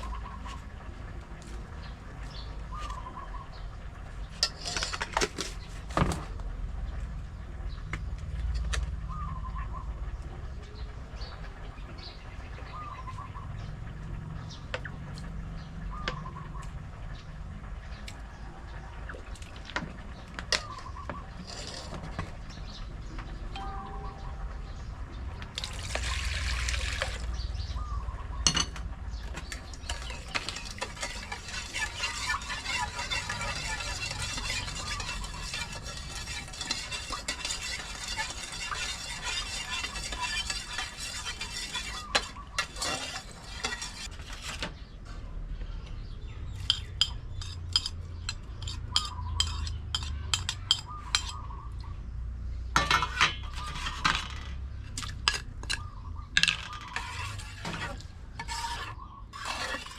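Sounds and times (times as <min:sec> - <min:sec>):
food stirred in pot scraping: 0:04.3 - 0:05.8, 0:20.0 - 0:22.6, 0:29.3 - 0:45.0, 0:46.5 - 0:51.5, 0:53.0 - 0:55.9, 0:56.6 - 0:59.9
utensil clinking against pot: 0:29.7 - 0:44.1, 0:46.6 - 0:51.4.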